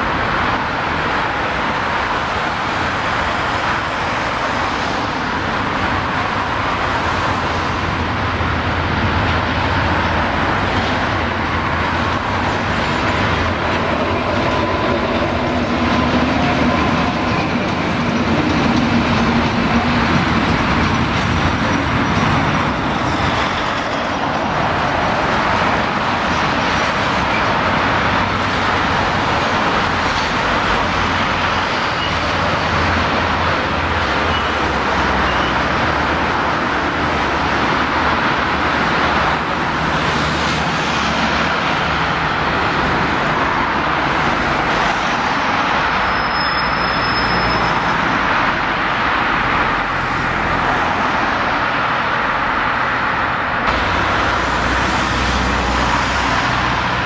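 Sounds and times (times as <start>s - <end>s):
diesel locomotive rumbling: 0.0s - 57.0s
road traffic: 0.0s - 57.0s
high squeal: 45.8s - 48.1s.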